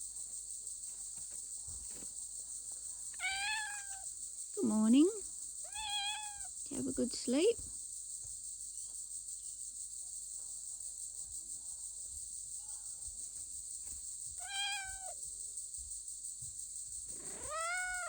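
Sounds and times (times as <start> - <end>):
cat meowing: 3.2 - 4.1, 5.7 - 6.5, 14.4 - 15.2, 17.1 - 18.0.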